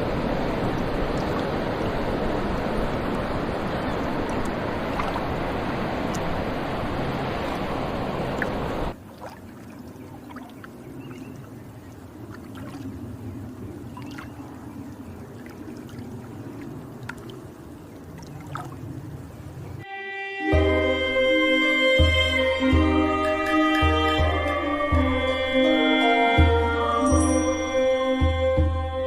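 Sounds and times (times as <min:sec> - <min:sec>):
rush of running water or wind: 0:00.0 - 0:19.9.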